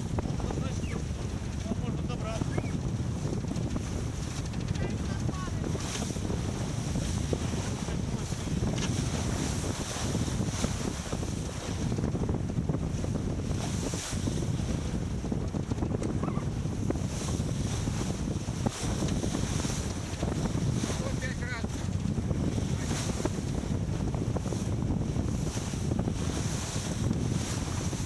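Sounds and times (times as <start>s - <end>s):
water splashing along hull: 0.0s - 28.0s
wind buffeting microphone: 0.0s - 28.0s.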